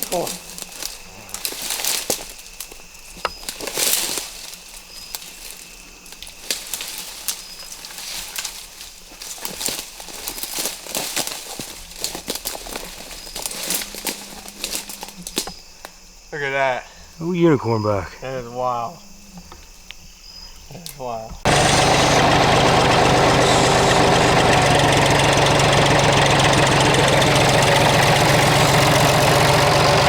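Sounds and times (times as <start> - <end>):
rustling and crackling of dry leaves: 0.0 - 16.0.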